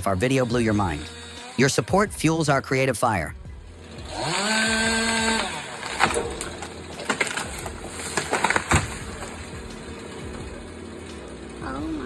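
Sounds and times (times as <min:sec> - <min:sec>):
machine whine: 0:03.5 - 0:12.0
wood cracking and splintering: 0:03.6 - 0:12.0.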